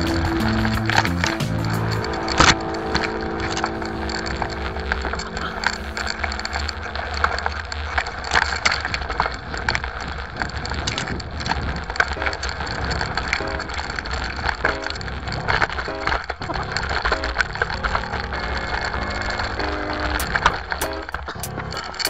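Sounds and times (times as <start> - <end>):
wind rumble on microphone: 1.8 - 15.8.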